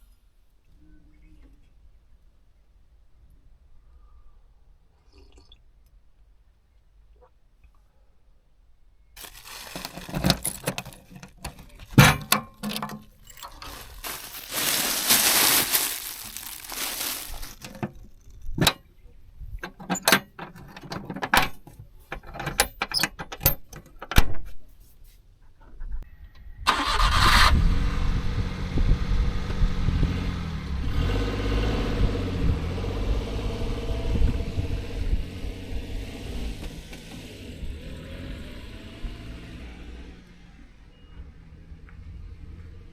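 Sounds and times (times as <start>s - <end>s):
rustling: 9.2s - 17.9s.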